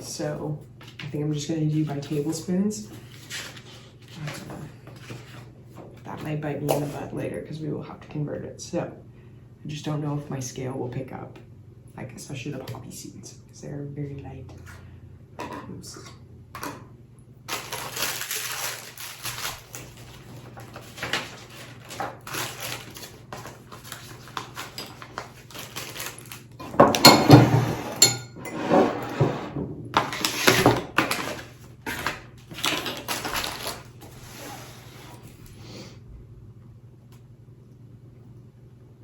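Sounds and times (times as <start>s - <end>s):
spoon clinking: 28.0s - 28.6s.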